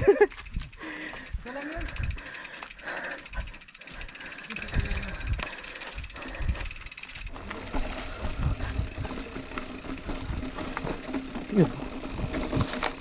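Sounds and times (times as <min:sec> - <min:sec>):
bicycle freewheel ticking: 0:00.0 - 0:13.0.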